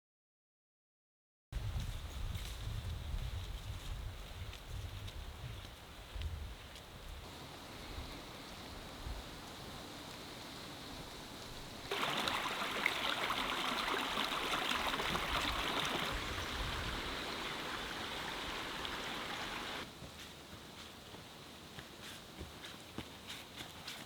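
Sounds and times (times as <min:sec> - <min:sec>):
heavy rain pouring: 0:11.8 - 0:19.8.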